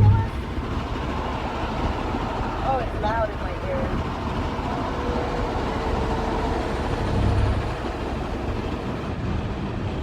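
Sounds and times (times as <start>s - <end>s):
road and engine noise in car: 0.0s - 10.0s
truck rumble: 0.0s - 10.0s.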